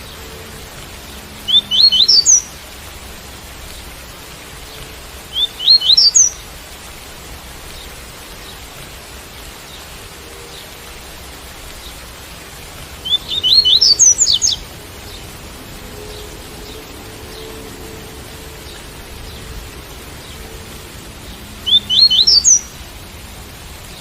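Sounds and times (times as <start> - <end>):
rain hiss: 0.0 - 24.0
bird singing quick rising notes: 1.4 - 2.5, 5.3 - 6.4, 13.0 - 20.6, 21.6 - 22.8.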